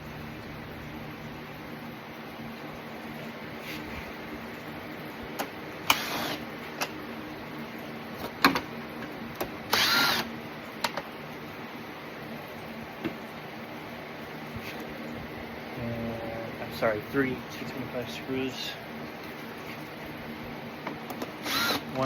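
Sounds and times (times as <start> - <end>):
power driver whirring: 5.8 - 6.4, 9.4 - 10.3, 21.1 - 22.0.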